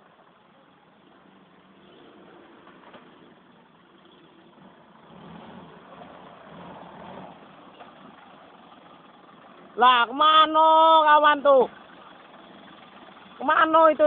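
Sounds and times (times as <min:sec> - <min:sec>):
vehicle engine running: 0:04.5 - 0:14.0.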